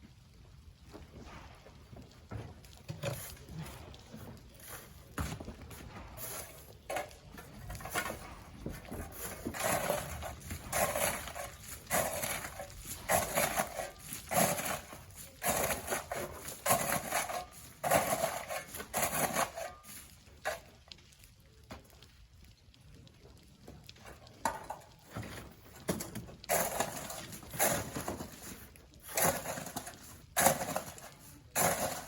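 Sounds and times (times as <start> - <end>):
sand being shovelled: 6.0 - 20.6, 26.5 - 32.0.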